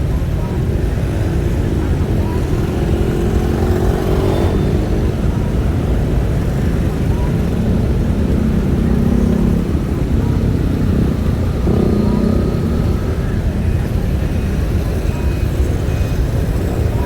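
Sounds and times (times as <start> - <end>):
low engine rumble: 4.5 - 17.0.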